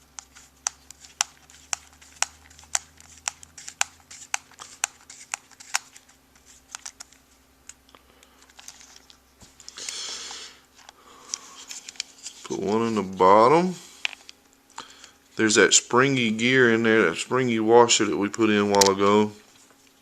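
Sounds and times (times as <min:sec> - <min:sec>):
handling rustle: 0:08.4 - 0:09.8.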